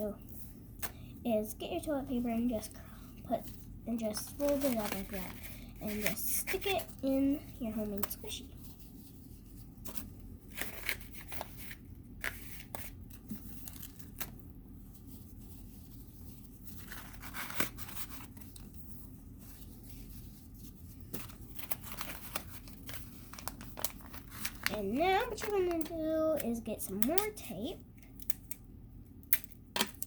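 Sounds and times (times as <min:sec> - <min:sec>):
toilet paper crinkling and rustling: 0:03.4 - 0:26.5.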